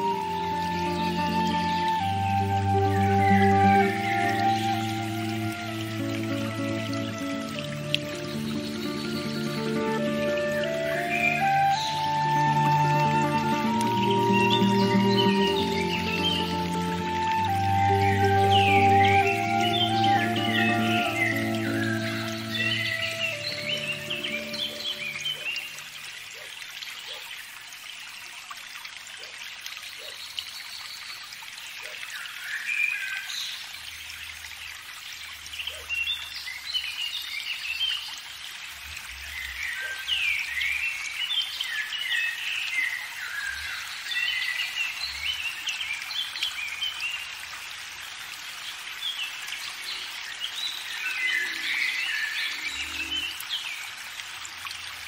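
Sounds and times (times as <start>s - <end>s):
songbirds singing: 0.0s - 26.5s, 49.1s - 53.9s
steady outdoor hiss: 0.0s - 55.0s.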